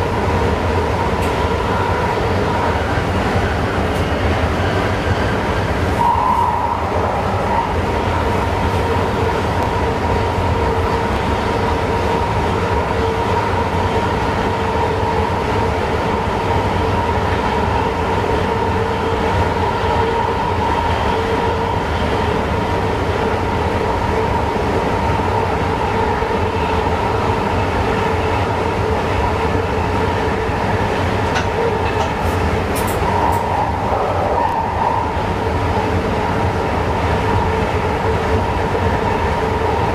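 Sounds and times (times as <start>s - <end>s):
steady train whine: 0.0s - 39.9s
train wheels rumbling on rail: 0.0s - 39.9s.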